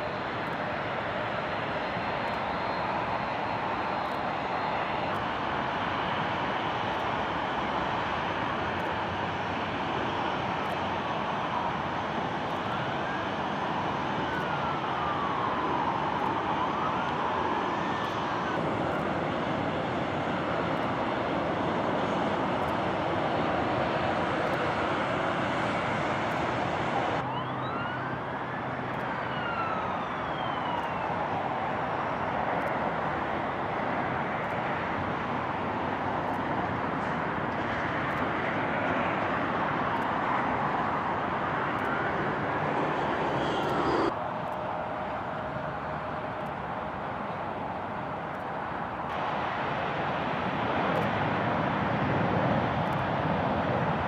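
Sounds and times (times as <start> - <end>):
steady rush of noise: 0.0 - 27.3, 28.1 - 54.0
siren wailing: 11.0 - 19.0, 25.9 - 32.8.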